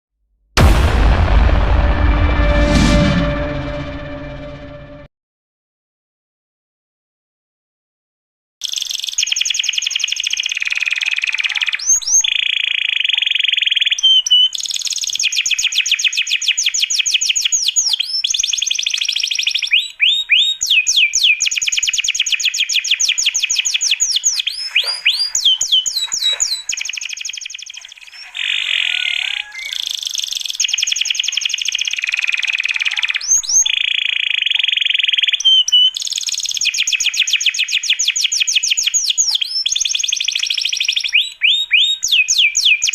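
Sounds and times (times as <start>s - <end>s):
songbirds singing: 8.6s - 42.9s.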